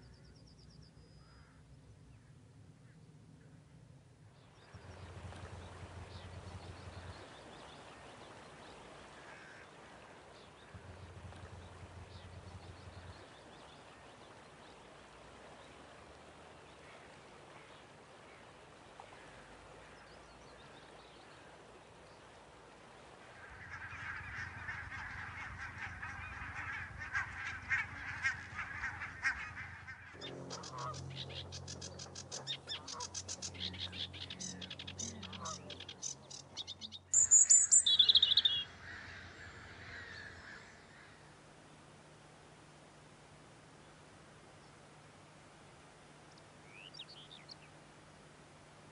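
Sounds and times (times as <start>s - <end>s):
wild birds calling: 4.4s - 45.3s.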